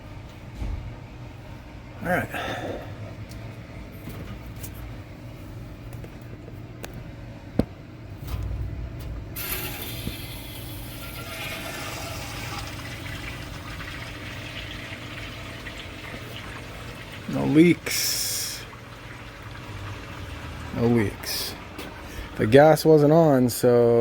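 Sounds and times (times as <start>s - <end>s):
hiss of flowing water: 17.4s - 18.8s.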